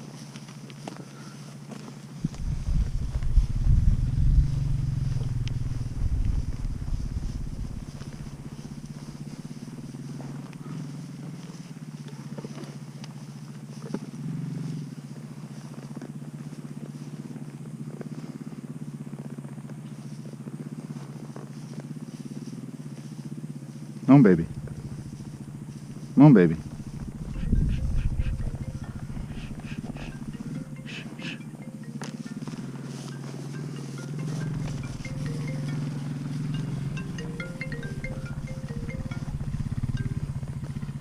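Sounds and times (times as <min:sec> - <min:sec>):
tractor engine idling: 0:01.0 - 0:11.7, 0:24.2 - 0:41.0
heavy low rumble: 0:02.2 - 0:09.5, 0:24.4 - 0:25.6, 0:26.6 - 0:30.8, 0:34.0 - 0:41.0.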